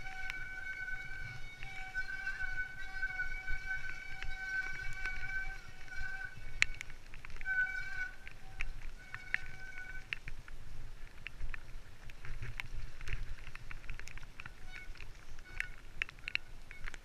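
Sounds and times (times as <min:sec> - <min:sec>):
high brake squeal: 0:00.0 - 0:06.8
bike frame rattling and clicking: 0:00.0 - 0:17.0
low tyre rumble: 0:00.0 - 0:17.0.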